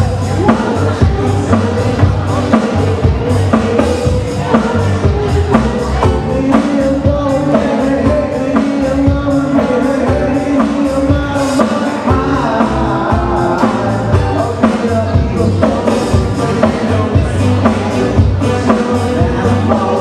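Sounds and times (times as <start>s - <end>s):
drum beat: 0.0s - 20.0s.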